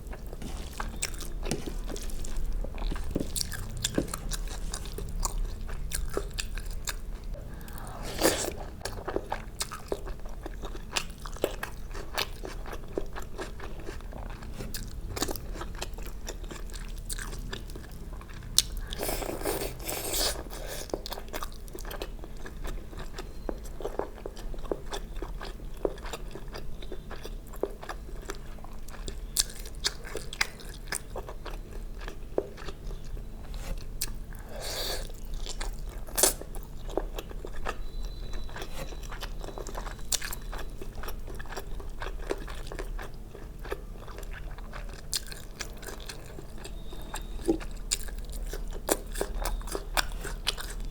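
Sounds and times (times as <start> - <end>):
person chewing crunchy food: 0.0 - 50.9.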